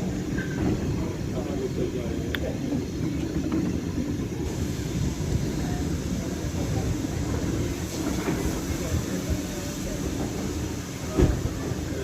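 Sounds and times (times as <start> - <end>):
faint voices: 0.0 - 12.0
train rumbling: 0.0 - 12.0.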